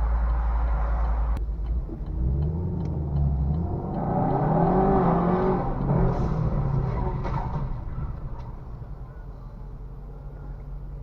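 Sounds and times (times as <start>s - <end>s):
faint regular ticking: 0.0s - 6.9s
car engine accelerating: 0.0s - 11.0s.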